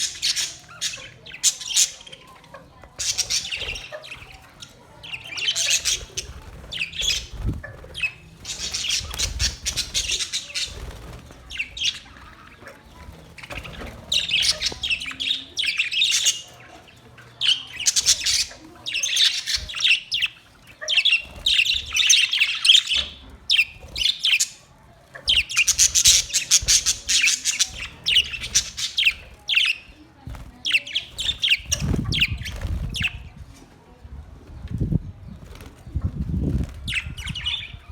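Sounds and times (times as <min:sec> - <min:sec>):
parrots squawking: 0:00.0 - 0:30.0, 0:30.6 - 0:33.2.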